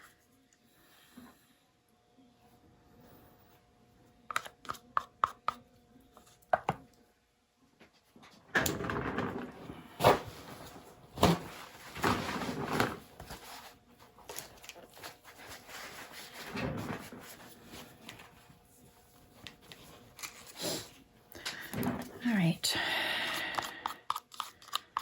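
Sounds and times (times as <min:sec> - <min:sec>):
scraping and rustling: 0:09.0 - 0:21.0.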